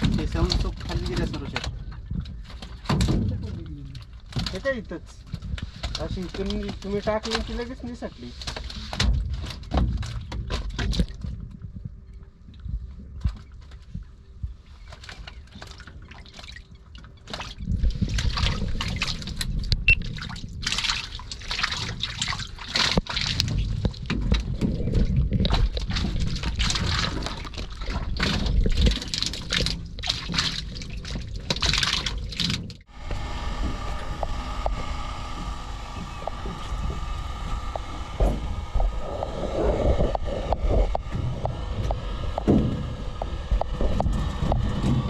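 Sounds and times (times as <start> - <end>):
water splashing and sloshing: 0.0 - 45.0
engine hum: 18.1 - 45.0.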